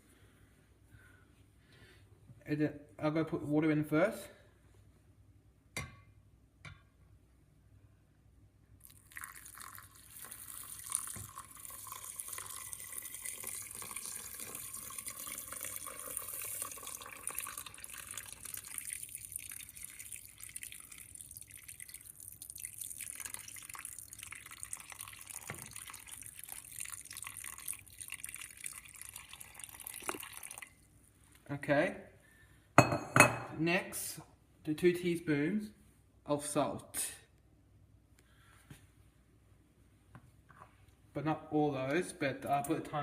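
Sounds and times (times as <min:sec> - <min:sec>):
tap water running into pot: 0:08.8 - 0:30.8.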